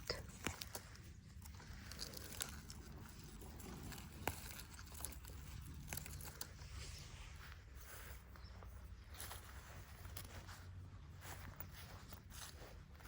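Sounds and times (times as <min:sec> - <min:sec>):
tearing and rustling of weeds: 0:00.0 - 0:08.3.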